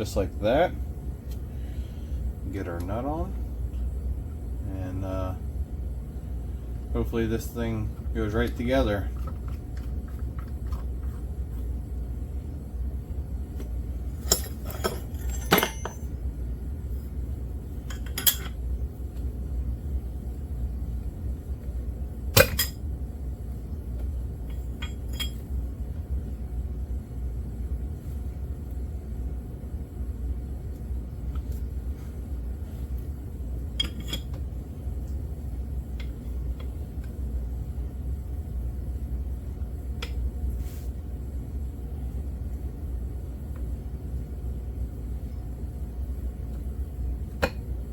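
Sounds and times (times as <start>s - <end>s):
steady low hum: 0.0s - 47.9s
steady low rumble: 0.0s - 47.9s
metal tools clinking: 14.2s - 16.1s, 17.8s - 18.6s.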